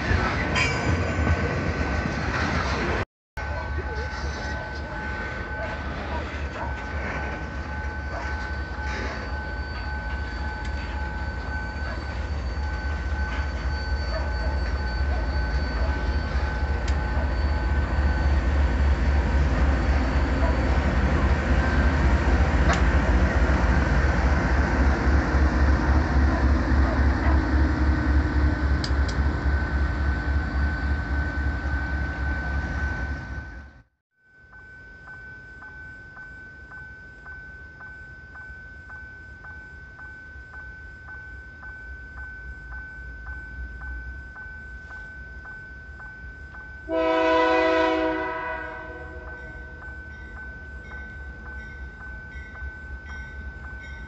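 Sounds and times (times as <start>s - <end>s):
diesel locomotive passing: 0.0s - 33.9s, 41.8s - 54.0s
freight wagons rumbling on rails: 0.0s - 33.9s.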